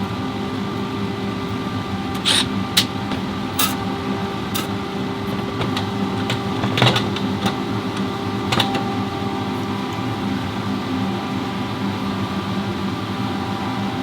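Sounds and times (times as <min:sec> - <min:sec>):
steady machine hum: 0:00.0 - 0:14.0
metal tools clinking: 0:02.2 - 0:03.9, 0:04.5 - 0:04.7.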